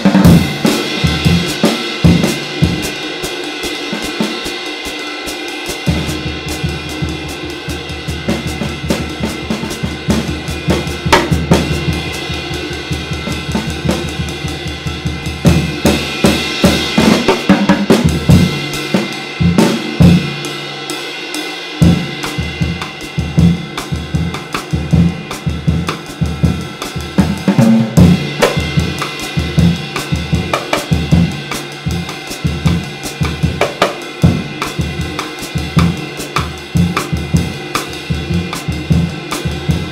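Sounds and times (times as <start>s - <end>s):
drum kit playing: 0.0s - 39.9s
low drum strokes: 21.8s - 39.9s.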